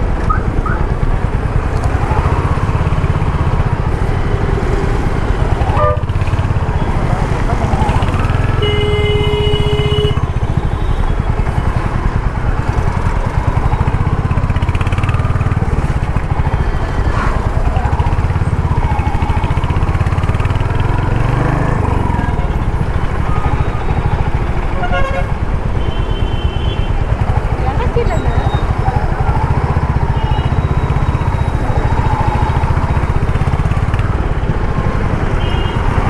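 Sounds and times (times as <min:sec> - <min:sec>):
motorcycle engine running: 0:00.0 - 0:36.0
vehicle horn: 0:05.6 - 0:07.0, 0:08.4 - 0:11.1, 0:24.6 - 0:27.0, 0:35.3 - 0:36.0.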